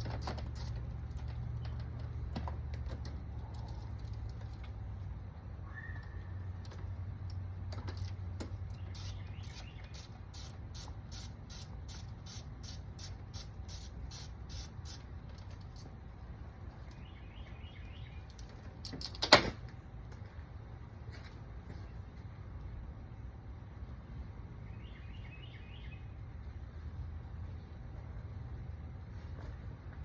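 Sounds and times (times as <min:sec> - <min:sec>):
ratchet wrench clicking: 0:07.3 - 0:15.9.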